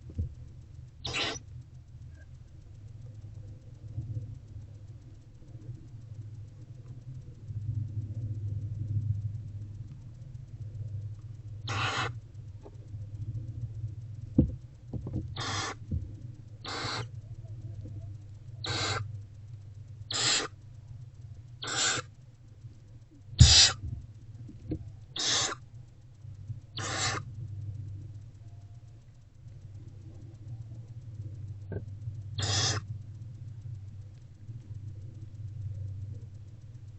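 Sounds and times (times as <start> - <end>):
low hum: 0.0 - 36.9
owlets hissing: 1.0 - 1.4, 11.7 - 12.2, 15.4 - 15.9, 16.6 - 17.1, 18.6 - 19.1, 20.1 - 20.6, 21.6 - 22.1, 23.4 - 23.8, 25.2 - 25.6, 26.8 - 27.3, 32.4 - 32.9.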